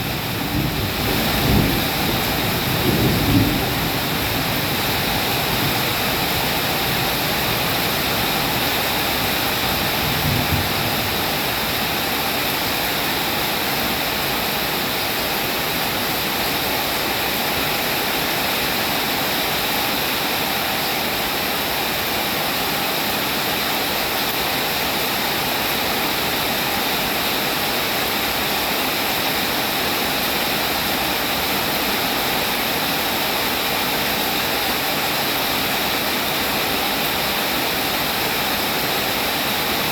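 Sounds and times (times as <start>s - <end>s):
steady rain: 0.0s - 39.9s
low rumble of thunder: 0.2s - 7.7s, 9.9s - 11.6s.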